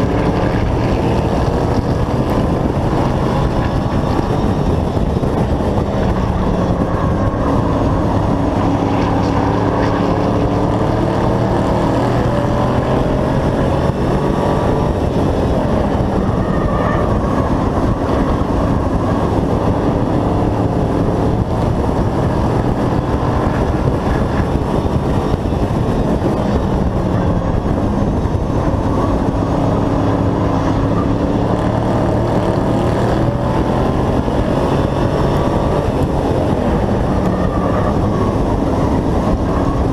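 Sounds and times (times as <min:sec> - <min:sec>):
race truck engine running hard: 0:00.0 - 0:39.9.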